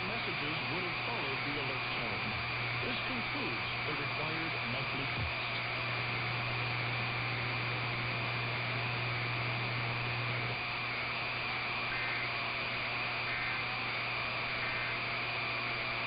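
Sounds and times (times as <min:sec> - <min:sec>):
faint constant whistle: 0:00.0 - 0:16.0
low hum: 0:00.0 - 0:16.0
radio reception hiss: 0:00.0 - 0:16.0
two-tone data bursts: 0:00.0 - 0:16.0.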